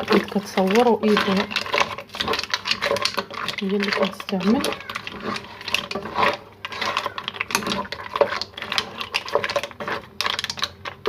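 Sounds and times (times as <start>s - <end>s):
utensil scraping cooking pot: 0.0s - 11.0s.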